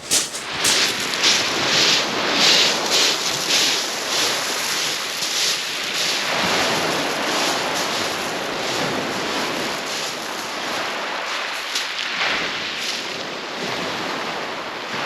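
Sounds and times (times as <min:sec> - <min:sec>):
waves breaking on shingle: 0:00.0 - 0:12.0.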